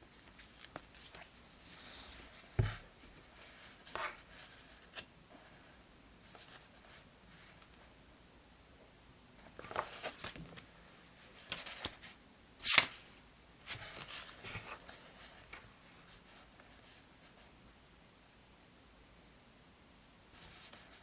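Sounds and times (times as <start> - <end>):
paper rustling: 0.1 - 5.1, 9.4 - 10.7, 13.6 - 17.0.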